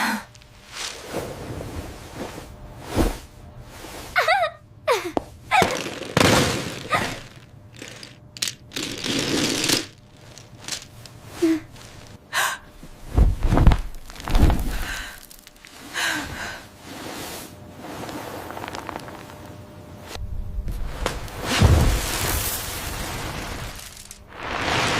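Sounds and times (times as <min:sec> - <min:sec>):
deep thumps: 0:13.0 - 0:14.9.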